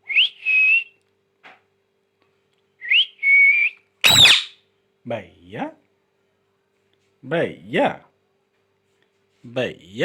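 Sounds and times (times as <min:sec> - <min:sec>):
parrot whistling: 0:02.8 - 0:04.6
parrot squawk: 0:04.0 - 0:04.6.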